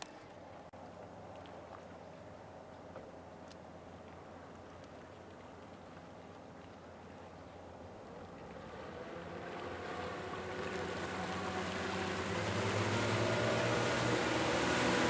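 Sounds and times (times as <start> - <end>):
outboard motor humming: 4.1 - 15.0
rushing water hiss: 9.6 - 15.0.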